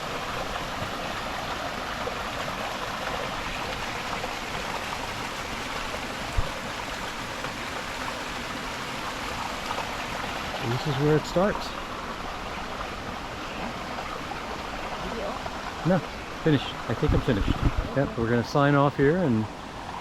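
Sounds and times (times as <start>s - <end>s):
stream water running: 0.0s - 20.0s.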